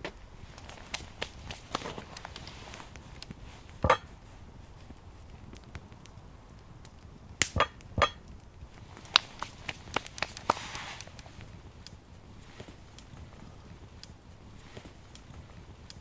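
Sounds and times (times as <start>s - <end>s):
brief rustling hiss: 10.2s - 11.3s.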